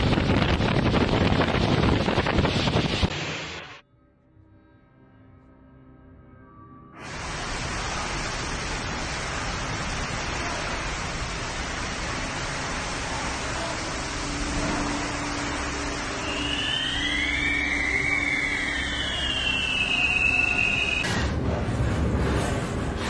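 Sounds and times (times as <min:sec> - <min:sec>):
storm wind roaring: 0:00.0 - 0:03.6
rain: 0:07.0 - 0:23.0
high wavering tone: 0:14.4 - 0:21.0.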